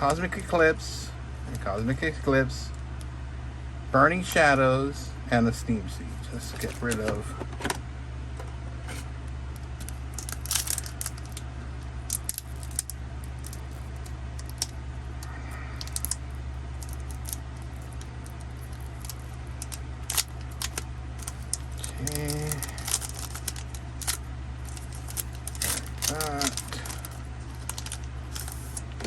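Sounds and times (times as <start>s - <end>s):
steady low hum: 0.0s - 29.0s
packaging crinkling: 8.9s - 29.0s.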